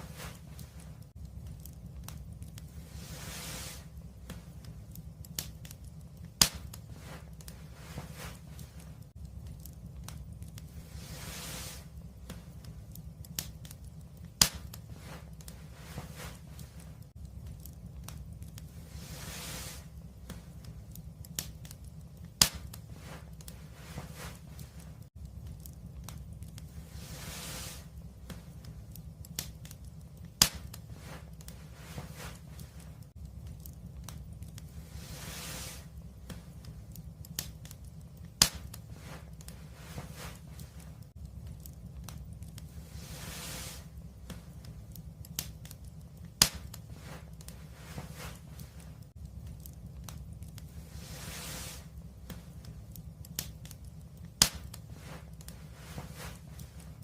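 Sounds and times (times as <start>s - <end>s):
fire popping: 0.0s - 57.0s
steady low rumble: 0.0s - 57.0s
wood fire crackling: 0.0s - 57.0s
sharp pop from fire: 6.4s - 7.2s, 14.4s - 15.2s, 22.4s - 23.2s, 30.4s - 31.2s, 38.4s - 39.2s, 46.4s - 46.8s, 54.4s - 55.2s.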